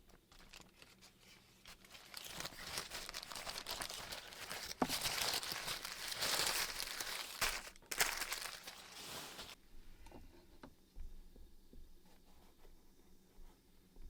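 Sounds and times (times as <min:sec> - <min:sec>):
crinkling rustling handling noise: 0:00.0 - 0:09.6.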